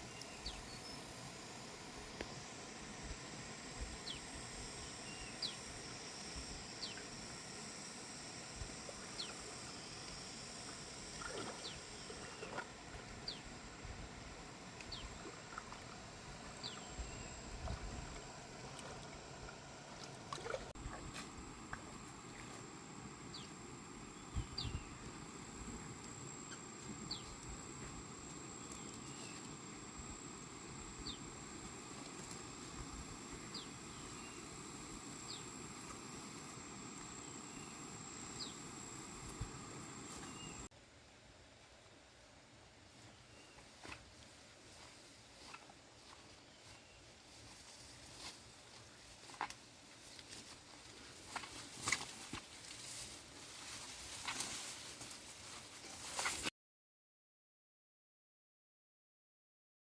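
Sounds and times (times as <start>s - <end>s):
high-pitched insect drone: 0.0s - 15.4s, 16.1s - 40.7s.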